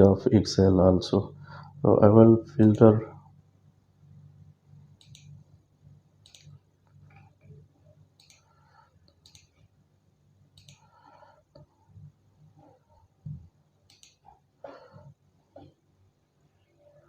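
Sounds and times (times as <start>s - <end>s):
computer mouse clicks: 5.0s - 5.4s, 6.2s - 7.5s, 8.1s - 9.7s, 10.5s - 10.9s, 13.8s - 14.4s.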